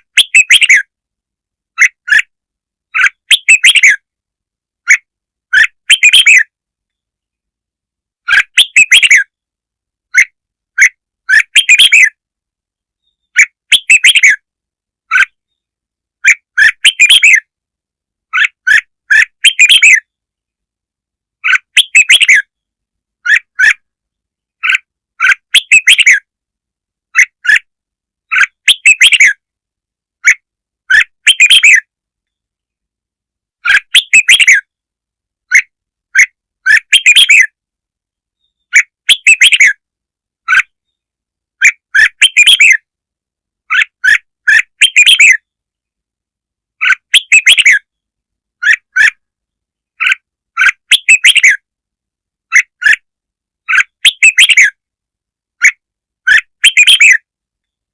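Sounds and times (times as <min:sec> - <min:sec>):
bulbul chirping song: 0:00.0 - 0:00.9, 0:02.9 - 0:04.1, 0:04.8 - 0:07.0, 0:08.2 - 0:09.4, 0:10.1 - 0:12.2, 0:13.0 - 0:14.5, 0:15.1 - 0:17.5, 0:18.3 - 0:20.2, 0:21.4 - 0:23.9, 0:24.6 - 0:26.3, 0:28.3 - 0:29.4, 0:30.2 - 0:32.4, 0:33.6 - 0:34.7, 0:35.5 - 0:37.6, 0:38.4 - 0:39.8, 0:41.6 - 0:42.9, 0:43.7 - 0:45.6, 0:46.8 - 0:48.0, 0:50.0 - 0:51.7, 0:53.6 - 0:54.8, 0:55.6 - 0:57.3.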